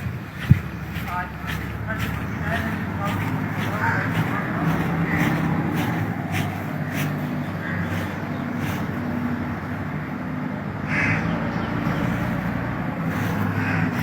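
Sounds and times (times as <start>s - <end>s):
outdoor background rumble: 0.0s - 14.0s
crow cawing: 3.6s - 8.8s, 10.8s - 11.3s, 13.1s - 14.0s.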